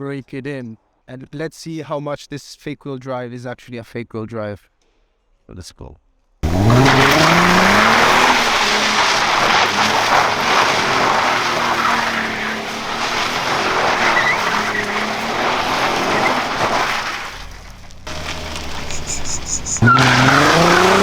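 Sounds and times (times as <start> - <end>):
car engine at high revs: 6.4 - 21.0
tyres squealing and skidding: 6.4 - 21.0.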